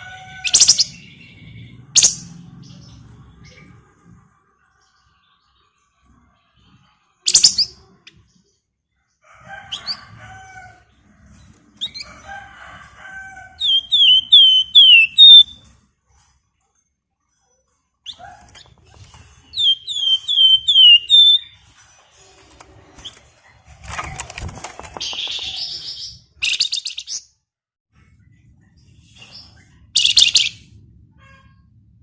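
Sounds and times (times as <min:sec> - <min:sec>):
songbird singing: 0:00.5 - 0:03.1, 0:13.6 - 0:15.6, 0:19.5 - 0:21.5.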